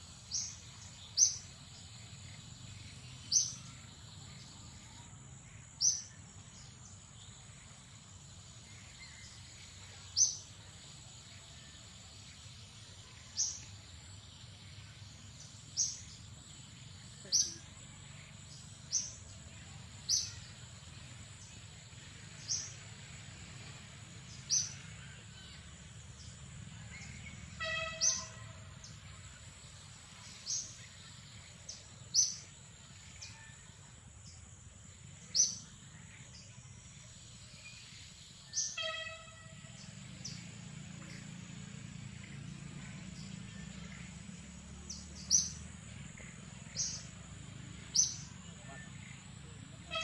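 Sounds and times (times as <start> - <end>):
bird call with pitched tones: 27.0 - 29.0, 37.6 - 40.4.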